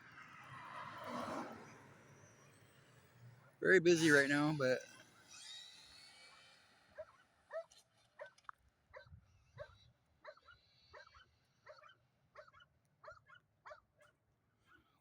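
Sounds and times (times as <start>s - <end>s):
dog yipping and whimpering: 7.0s - 8.4s, 9.0s - 13.8s.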